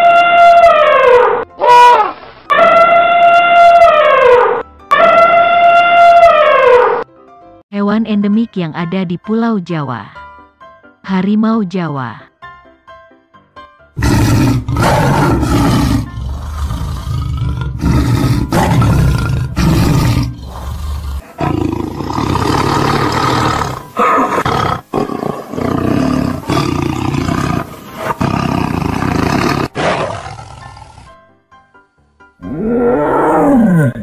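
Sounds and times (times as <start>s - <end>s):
tiger roaring: 14.0s - 31.2s, 32.4s - 34.0s.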